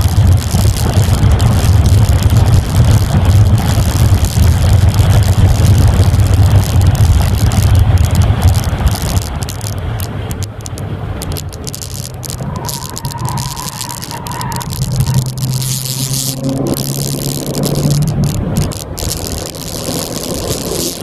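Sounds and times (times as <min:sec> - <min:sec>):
car engine revving high: 0:12.2 - 0:21.0.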